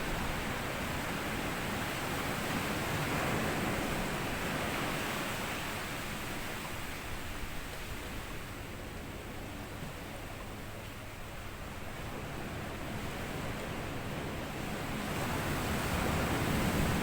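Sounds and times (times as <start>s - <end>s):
waves washing onto sand beach: 12.1s - 17.0s.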